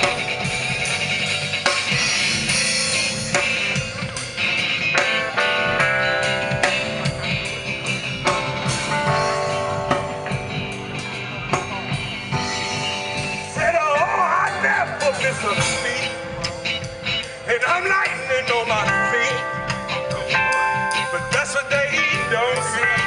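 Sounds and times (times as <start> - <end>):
drum kit steady beat: 0.0 - 23.0
strummed electric guitar: 0.0 - 23.0.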